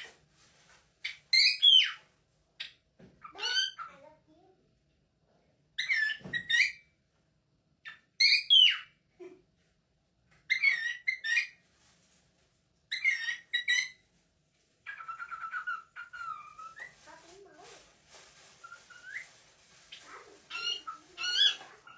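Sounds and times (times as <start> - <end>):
parrot calling: 1.0 - 2.0, 3.2 - 4.0, 5.8 - 6.8, 7.9 - 8.9, 10.5 - 11.6, 12.9 - 14.0, 14.8 - 17.0, 18.6 - 21.9.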